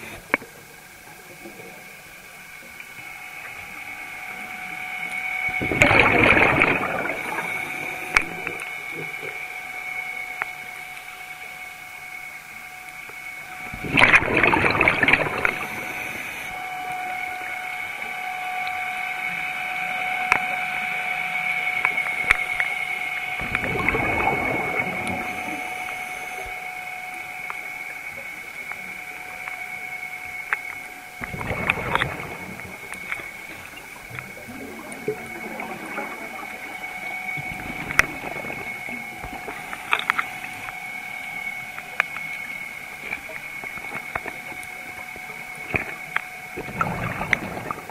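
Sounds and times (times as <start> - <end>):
high-pitched hum: 0.0 - 47.9
diver exhaling bubbles: 5.6 - 8.6, 13.7 - 16.5, 23.4 - 26.5, 31.2 - 33.0.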